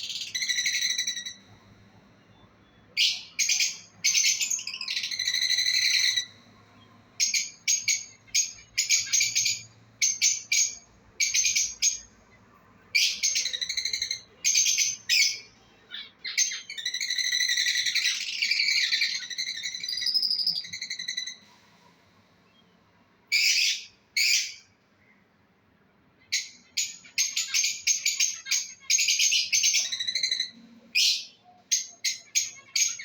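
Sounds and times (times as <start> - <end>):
lovebirds chirping and chattering: 0.0 - 21.4, 26.2 - 33.0.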